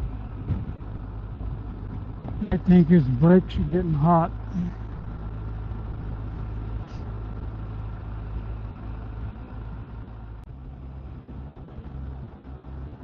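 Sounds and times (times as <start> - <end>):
motorcycle engine cruising: 0.0 - 13.0
wind and road noise: 0.0 - 13.0.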